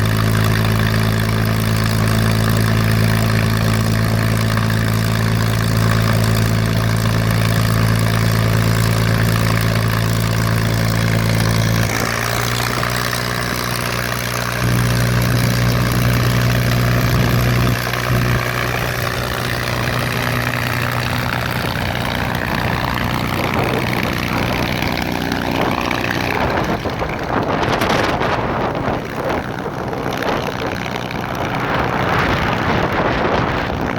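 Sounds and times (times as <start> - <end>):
propeller plane engine idling: 0.0 - 33.9
wind noise on microphone: 14.6 - 33.9.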